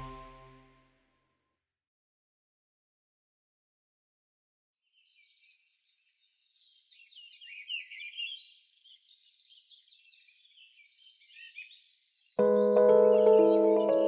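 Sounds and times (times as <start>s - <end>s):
songbirds chirping and trilling: 4.9s - 14.0s.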